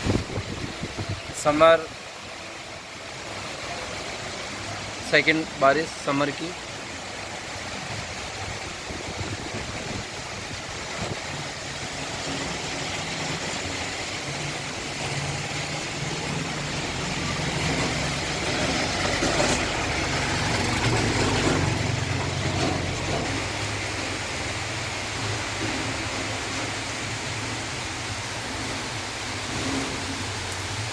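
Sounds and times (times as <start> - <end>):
heavy rain falling: 0.0 - 30.9
vehicle engine humming: 7.0 - 30.9.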